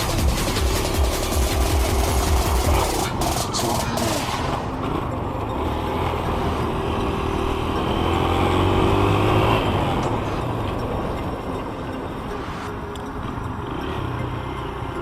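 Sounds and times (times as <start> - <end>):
dirt bike engine revving: 0.0 - 11.6.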